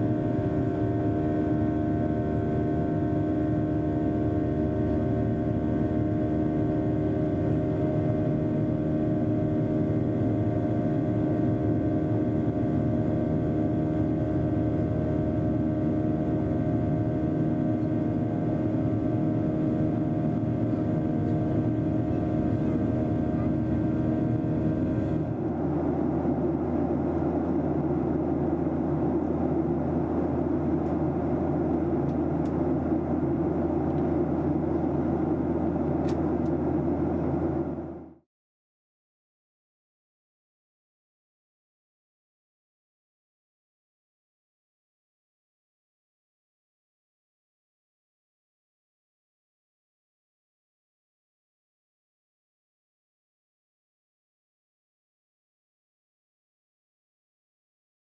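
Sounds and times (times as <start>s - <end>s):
steady humming tones: 0.0s - 26.6s
jet engine cabin drone: 0.0s - 38.2s.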